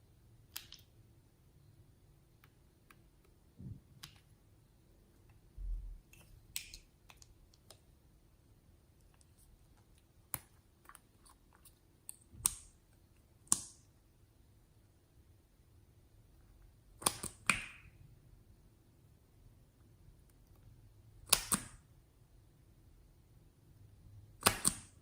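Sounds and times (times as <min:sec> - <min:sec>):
small objects clicking and tapping: 0:00.5 - 0:01.0, 0:06.1 - 0:07.8.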